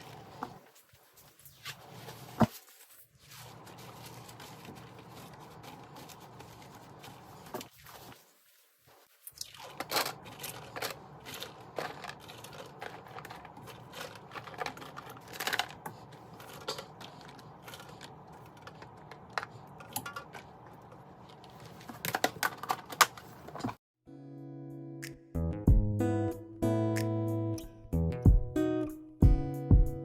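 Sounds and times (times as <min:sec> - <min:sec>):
household items clicking and knocking: 0:09.4 - 0:23.8.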